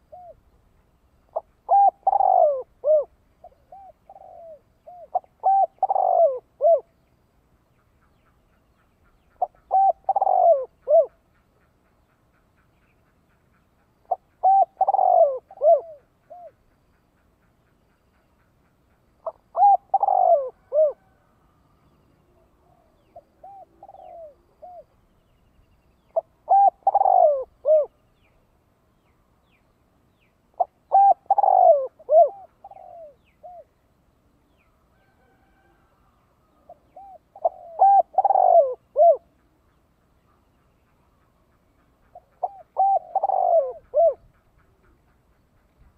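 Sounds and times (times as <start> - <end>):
dove cooing: 0.0 - 0.4, 1.3 - 6.9, 9.4 - 11.2, 14.0 - 16.6, 19.2 - 21.2, 22.3 - 24.9, 26.1 - 28.0, 30.6 - 33.7, 34.3 - 39.6, 42.1 - 45.2.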